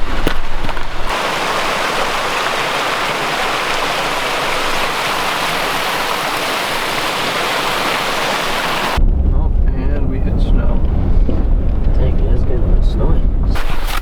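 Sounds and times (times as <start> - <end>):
flowing water rushing: 0.0 - 9.0.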